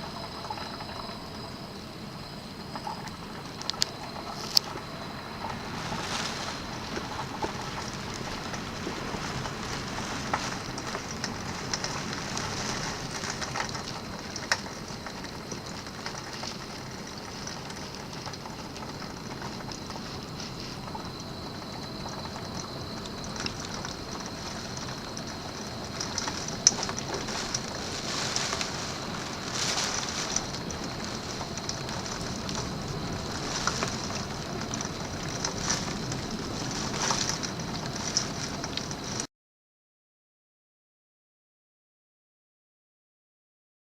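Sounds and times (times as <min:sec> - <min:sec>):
rain and wind rushing: 0:01.0 - 0:39.3.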